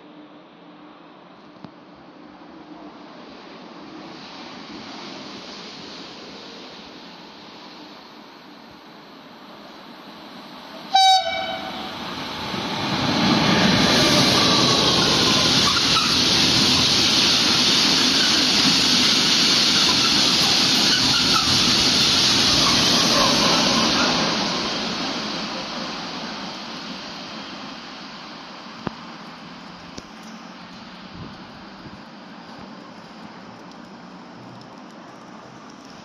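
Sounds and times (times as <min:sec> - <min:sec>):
train wheels on rails: 0:02.7 - 0:36.0
train horn blast: 0:10.9 - 0:12.0.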